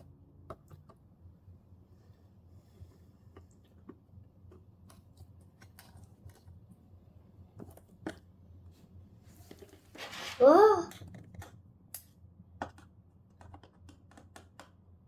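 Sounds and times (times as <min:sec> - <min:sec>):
screwdriver clicks and taps: 0:13.4 - 0:14.8.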